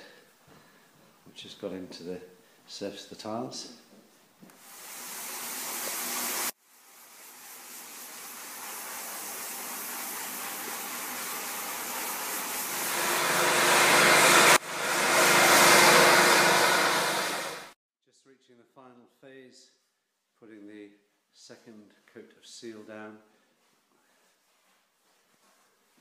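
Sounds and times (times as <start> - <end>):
floor-cleaning machine whirring: 4.7 - 17.8.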